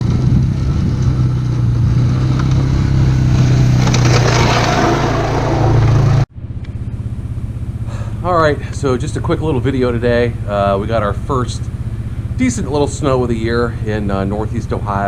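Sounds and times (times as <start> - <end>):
plow blade scraping snow: 0.0 - 6.3
atv engine running: 0.0 - 15.0.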